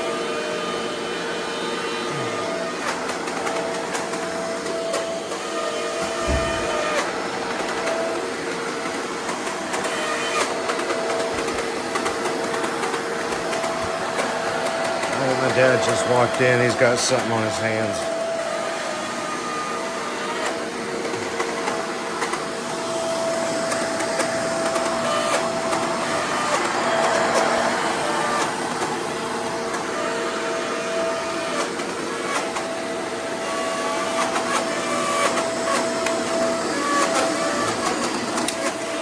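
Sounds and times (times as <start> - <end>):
vacuum cleaner grinding on carpet: 0.0 - 39.0.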